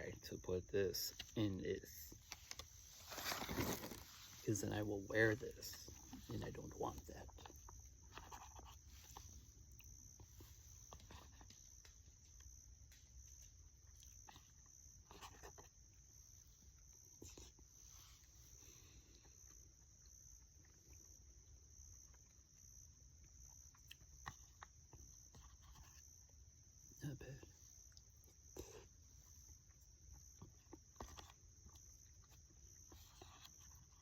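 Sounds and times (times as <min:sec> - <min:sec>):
soft clicks and rustles: 0:02.1 - 0:04.5.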